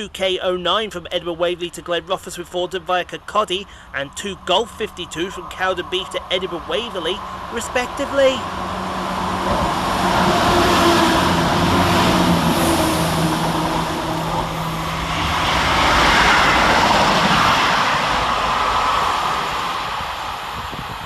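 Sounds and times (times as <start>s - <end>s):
diesel engine drone: 0.0s - 21.0s
train wheels rushing on rails: 4.6s - 21.0s.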